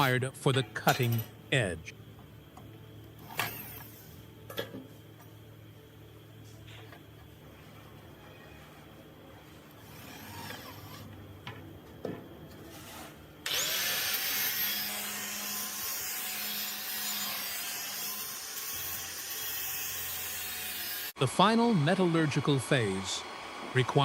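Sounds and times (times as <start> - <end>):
angle grinder grinding steel: 9.9 - 11.1, 13.5 - 21.2.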